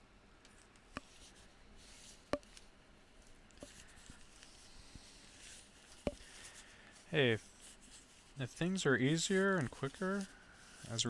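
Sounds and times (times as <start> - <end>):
faint rustling: 0.4 - 11.0.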